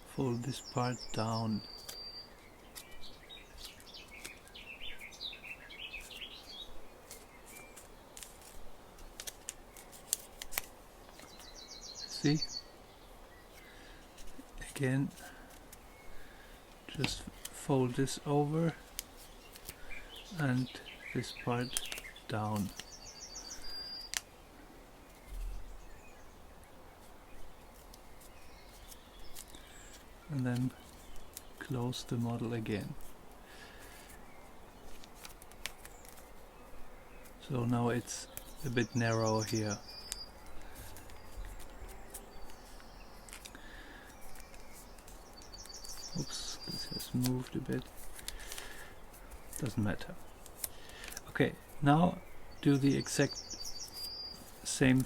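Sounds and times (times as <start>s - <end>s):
paper crackles and clicks: 2.7s - 4.5s, 7.0s - 11.5s, 18.8s - 20.7s, 21.6s - 22.9s, 24.0s - 24.3s, 27.7s - 34.2s, 34.8s - 36.4s, 37.7s - 51.8s, 53.9s - 55.0s
paper being folded: 6.0s - 11.5s, 13.5s - 18.2s, 18.8s - 22.9s, 27.0s - 51.8s
faint chirping: 14.8s - 55.0s.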